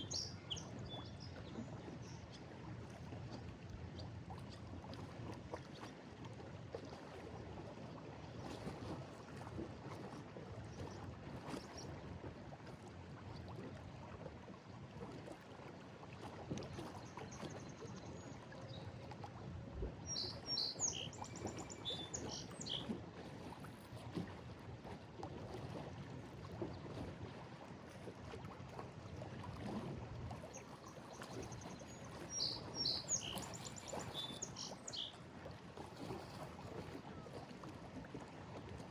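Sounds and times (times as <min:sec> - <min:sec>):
waves lapping against a wall: 0:19.0 - 0:38.9
small bird chirping: 0:32.4 - 0:35.1.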